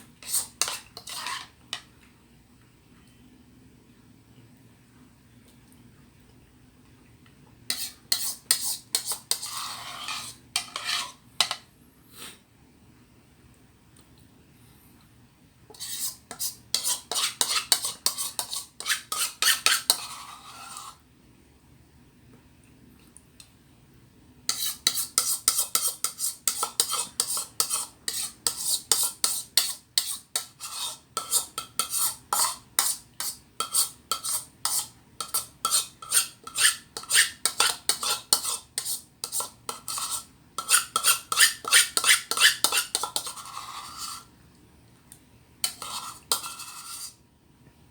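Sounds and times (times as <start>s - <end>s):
metal spoon scraping a container: 0.2s - 1.6s, 7.7s - 11.6s, 15.7s - 21.0s, 24.5s - 44.3s, 45.6s - 47.2s.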